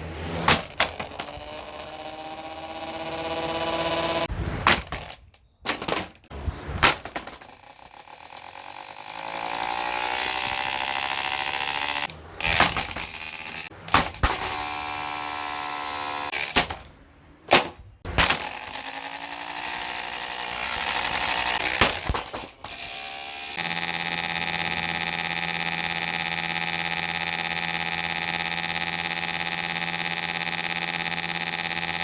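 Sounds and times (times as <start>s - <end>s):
box fan motor hum: 0.0s - 4.3s, 7.5s - 16.9s, 18.1s - 32.0s
fan being smashed: 0.5s - 1.2s, 4.6s - 7.6s, 13.9s - 14.5s, 16.4s - 16.9s, 17.5s - 18.8s, 21.6s - 22.7s.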